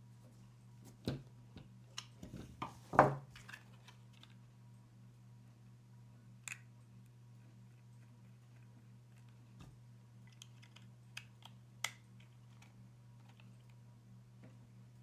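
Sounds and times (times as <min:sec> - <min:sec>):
small parts clicking and tapping: 0:07.8 - 0:13.8.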